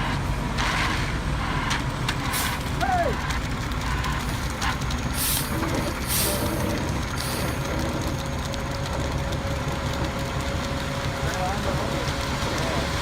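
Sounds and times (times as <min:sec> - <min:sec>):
cement mixer truck rumbling: 0:00.0 - 0:13.0
short hisses: 0:05.2 - 0:07.6.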